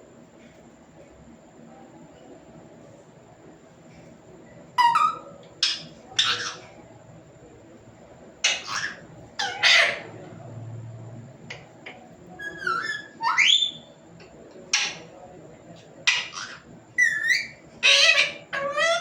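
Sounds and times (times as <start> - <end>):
parrot whistled calls: 4.8 - 6.6, 12.4 - 13.9, 16.1 - 19.0
parrot squawking: 4.8 - 6.7, 8.5 - 10.1, 12.4 - 13.9, 16.1 - 19.0.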